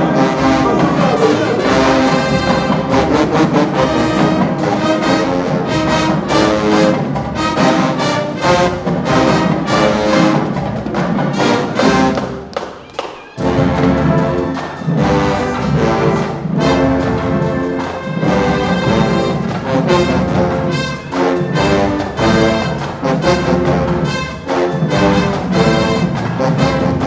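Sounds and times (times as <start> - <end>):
drum hits: 0.0 - 12.4
marching band brass: 0.0 - 27.0.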